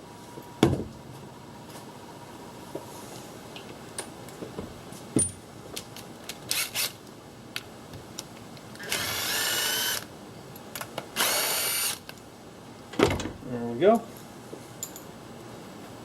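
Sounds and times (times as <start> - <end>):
power drill whine: 8.8 - 10.0, 11.2 - 12.0.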